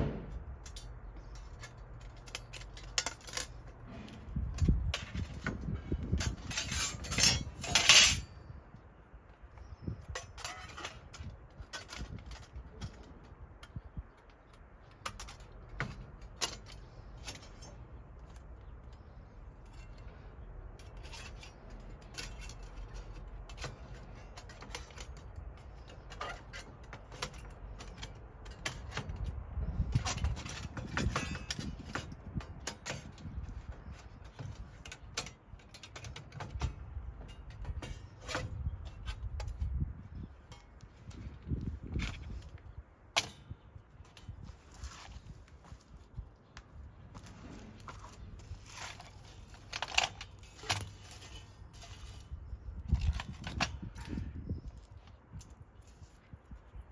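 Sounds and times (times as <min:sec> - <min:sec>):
metal stove parts clinking: 0:00.0 - 0:08.5, 0:09.7 - 0:13.0, 0:20.8 - 0:39.6.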